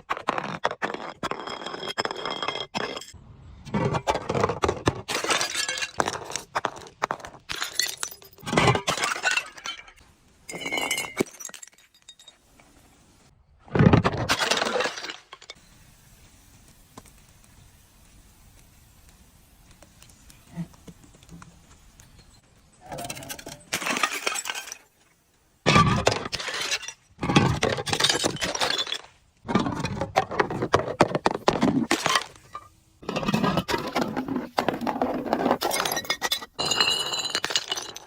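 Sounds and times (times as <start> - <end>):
glass bottles being crushed: 0.2 - 3.2, 3.9 - 12.4, 13.8 - 15.6, 22.9 - 25.0, 25.7 - 38.0.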